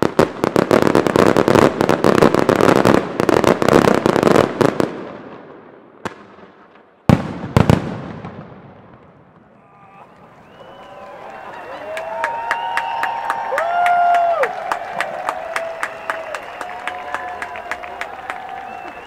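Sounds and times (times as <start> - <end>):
loud echoing firework bangs: 0.0 - 9.6
fireworks bursts and crackling: 0.0 - 19.0.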